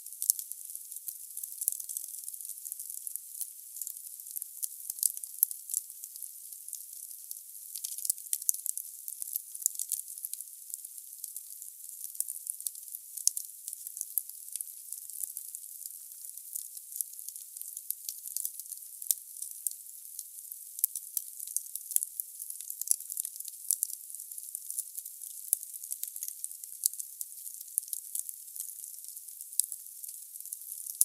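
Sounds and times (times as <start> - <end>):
firewood crackling and popping: 0.2 - 0.4, 30.4 - 31.0.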